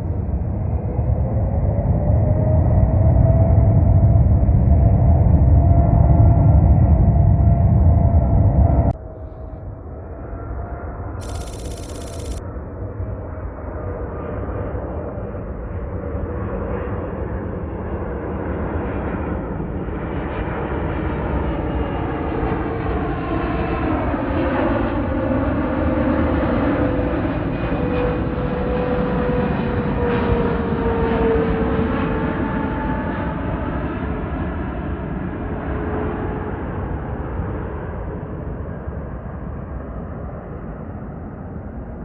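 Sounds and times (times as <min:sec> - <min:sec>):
jet airliner engines: 0:00.0 - 0:42.0
engine whine: 0:11.2 - 0:12.4.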